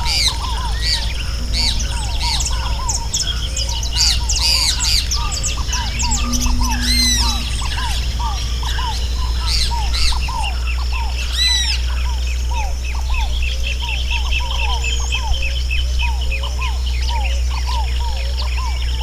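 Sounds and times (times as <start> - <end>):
steady low rumble: 0.0 - 13.5
chorus of wild birds chirping: 0.0 - 19.0
harsh bird calls: 0.0 - 19.0.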